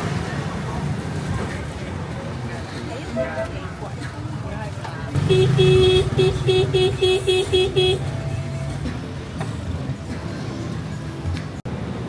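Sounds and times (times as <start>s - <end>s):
vehicle horn tooting: 5.2s - 8.2s.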